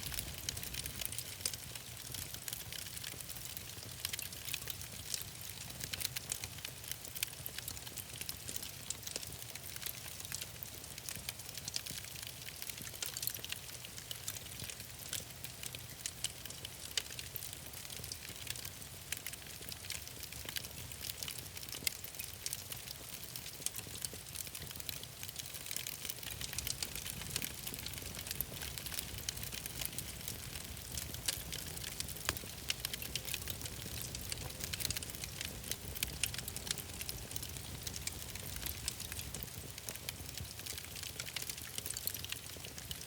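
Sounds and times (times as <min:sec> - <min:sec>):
low rumble of flames: 0:00.0 - 0:03.9, 0:23.2 - 0:43.0
fire crackling and popping: 0:00.0 - 0:43.0.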